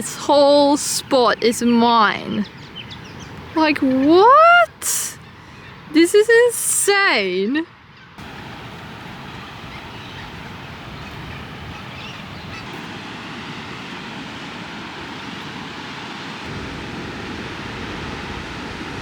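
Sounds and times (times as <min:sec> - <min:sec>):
ocean surf breaking: 0:08.2 - 0:19.0.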